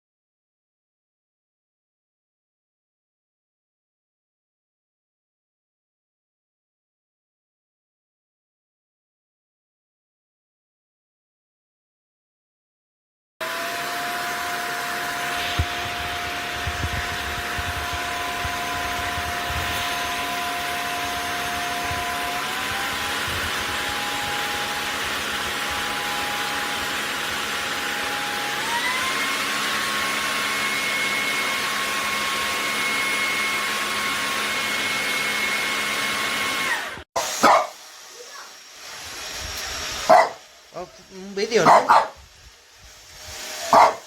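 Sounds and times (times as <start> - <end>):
stick vacuum running: 13.4 - 44.0.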